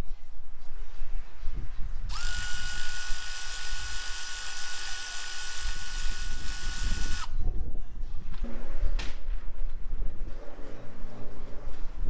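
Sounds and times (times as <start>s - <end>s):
power tool motor whining: 2.1s - 7.4s.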